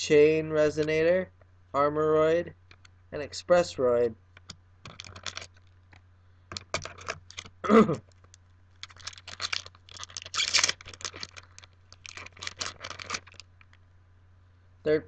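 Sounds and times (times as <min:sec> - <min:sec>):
cards being handled: 0:04.4 - 0:05.8, 0:06.5 - 0:07.6, 0:08.2 - 0:13.8
foil pack being torn open: 0:08.8 - 0:13.6.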